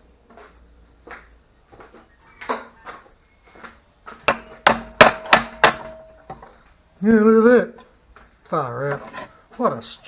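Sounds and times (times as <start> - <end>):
light metal knocks and clanks: 1.8 - 6.7, 7.8 - 9.8.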